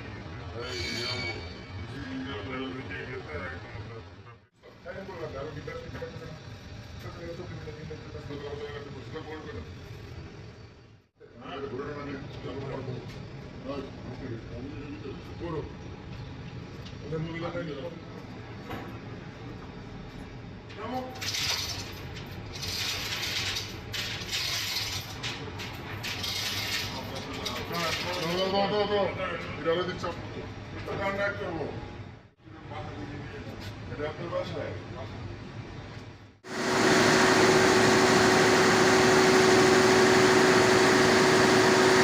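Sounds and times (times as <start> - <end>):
diesel engine droning: 36.5 - 42.0.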